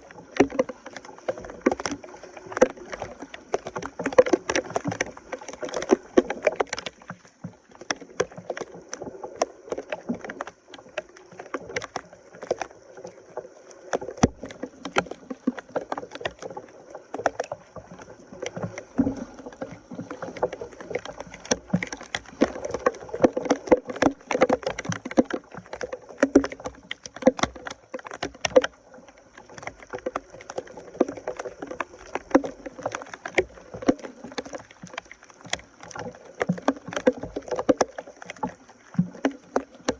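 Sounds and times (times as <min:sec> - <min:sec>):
water splashing and sloshing: 0:00.0 - 0:39.9
sharp knocks and clicks: 0:18.4 - 0:39.9.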